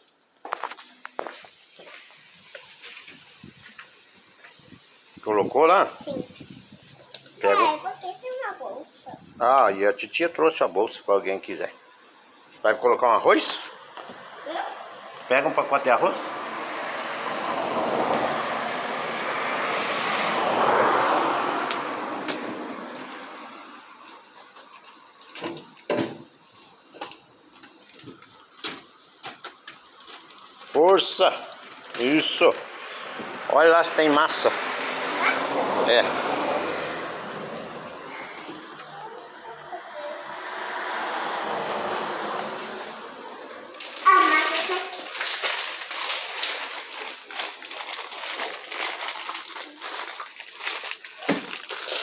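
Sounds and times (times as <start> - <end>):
food packages knocking and rustling: 43.8 - 52.0.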